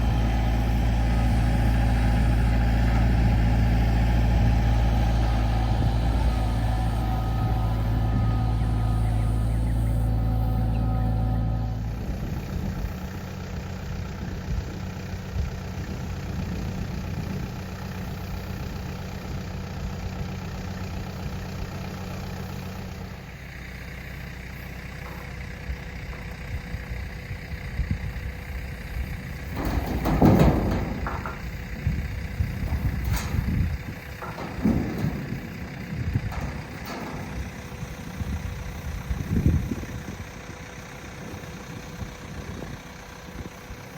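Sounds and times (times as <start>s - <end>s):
loud clunks and thumps: 0.0s - 11.6s, 29.4s - 40.1s
tractor engine idling: 0.0s - 43.9s.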